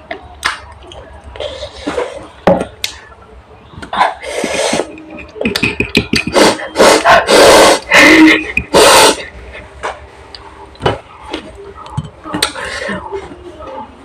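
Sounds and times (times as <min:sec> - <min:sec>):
hissing mouth noises: 0:04.0 - 0:09.4.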